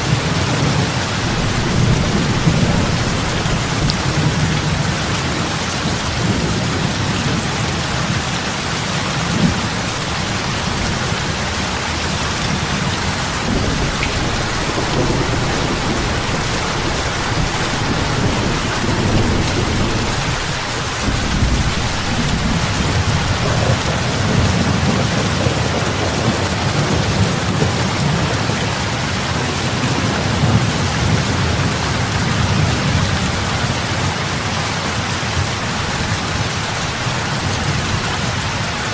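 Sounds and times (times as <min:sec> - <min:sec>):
heavy rain on water: 0:00.0 - 0:38.9.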